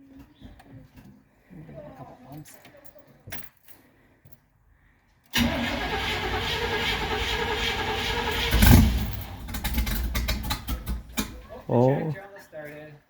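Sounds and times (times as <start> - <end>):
engine briefly firing: 5.4 - 11.4
starter motor cranking: 5.4 - 11.4.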